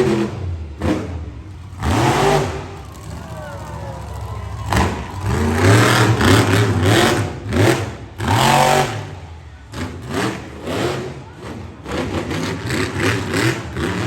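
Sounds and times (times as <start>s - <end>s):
monster truck engine revving: 0.0s - 14.0s.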